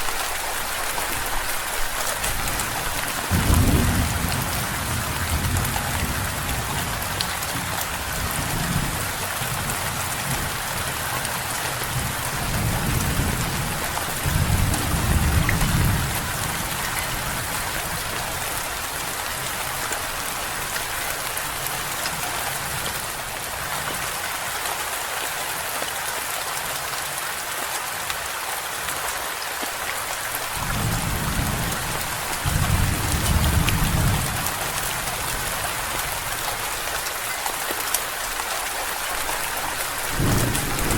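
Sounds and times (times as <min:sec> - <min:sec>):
steady rain falling: 0:00.0 - 0:40.9
low rolls of thunder: 0:02.4 - 0:07.6, 0:11.9 - 0:18.4, 0:30.5 - 0:34.7, 0:40.1 - 0:40.9.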